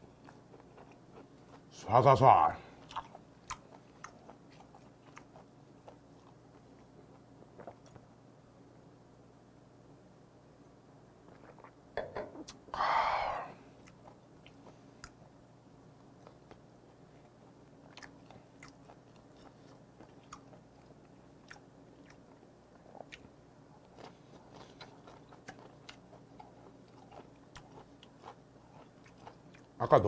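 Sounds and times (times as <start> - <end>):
person chewing: 0.0 - 1.7, 2.7 - 8.1, 11.3 - 11.8, 12.4 - 15.3, 17.9 - 30.0.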